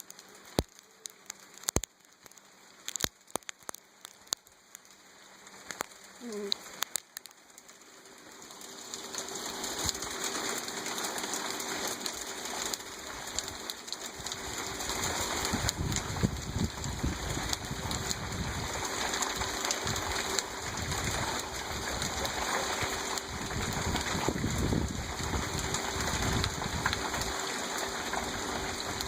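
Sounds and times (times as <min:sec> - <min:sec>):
hail pattering: 0:00.0 - 0:29.0
wind buffeting microphone: 0:14.9 - 0:18.8, 0:19.4 - 0:22.4, 0:23.2 - 0:27.3.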